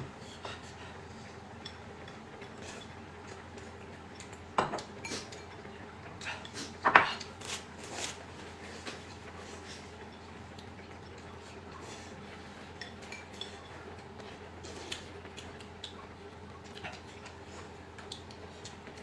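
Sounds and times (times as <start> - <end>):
steady low hum: 0.0 - 19.0
utensils clinking against dishes: 12.8 - 13.8.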